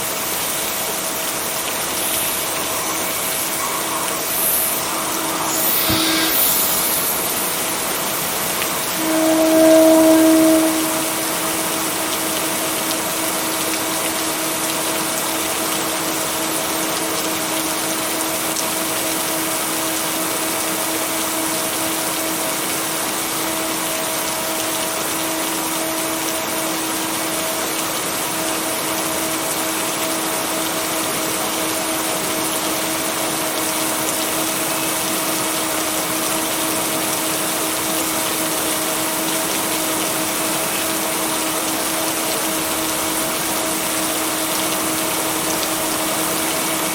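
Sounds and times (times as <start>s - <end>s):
heavy rain: 0.0s - 46.9s
low hum tone: 1.6s - 12.4s.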